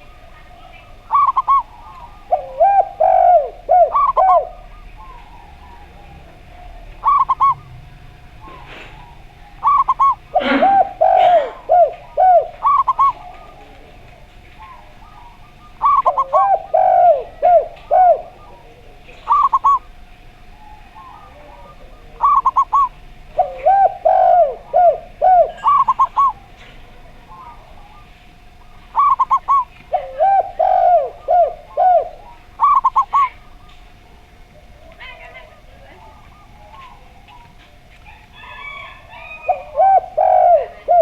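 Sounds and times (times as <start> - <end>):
lower falling dove coos: 0.0 - 41.0
quick higher dove coos: 8.4 - 13.7.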